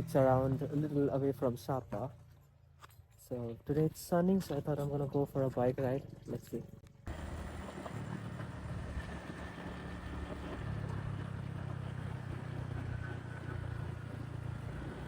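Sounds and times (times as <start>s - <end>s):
motorbike engine running: 6.8s - 15.0s.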